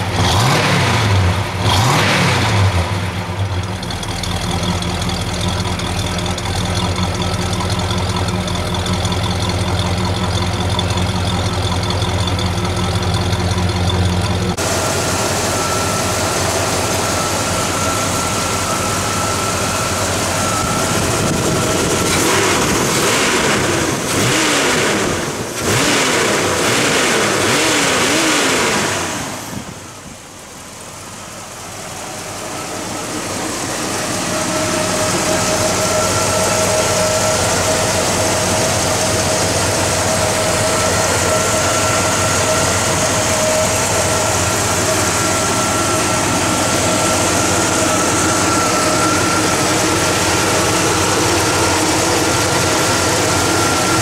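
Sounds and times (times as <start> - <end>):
engine revving and idling: 0.0 - 54.0
thin steady whine: 14.6 - 22.9, 29.7 - 54.0.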